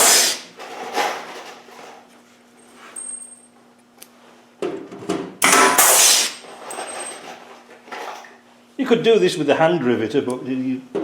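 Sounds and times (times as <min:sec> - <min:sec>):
rivet gun hissing burst: 0:00.0 - 0:00.5, 0:05.4 - 0:06.4.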